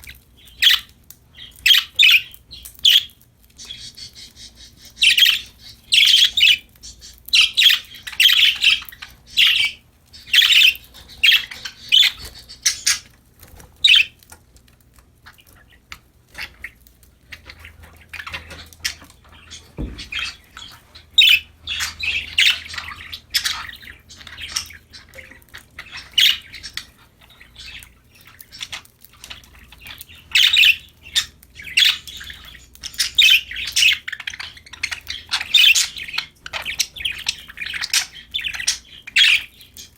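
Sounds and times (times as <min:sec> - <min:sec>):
parakeets chirping: 0:00.0 - 0:39.9
brief thump: 0:19.8 - 0:20.3.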